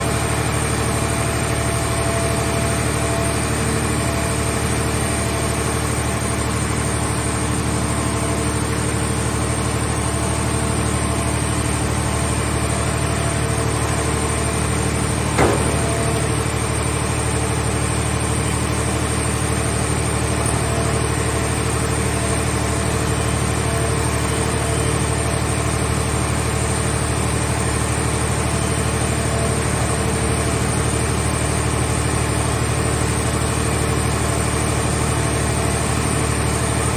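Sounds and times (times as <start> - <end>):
engine running steadily: 0.0 - 36.9
sharp knock: 15.4 - 16.3.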